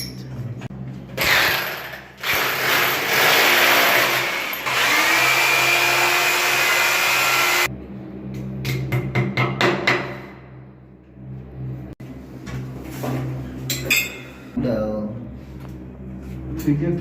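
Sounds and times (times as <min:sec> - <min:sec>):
electric power tool whining: 0:02.2 - 0:07.7.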